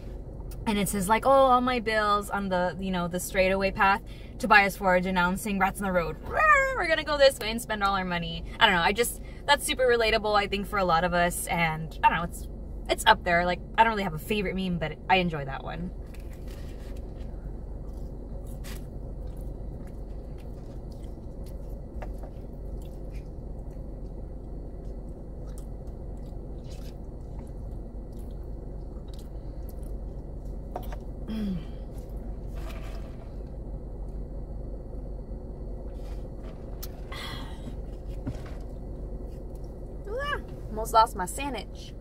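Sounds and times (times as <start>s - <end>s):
steady low hum: 0.0s - 42.0s
person chewing food: 16.0s - 31.1s.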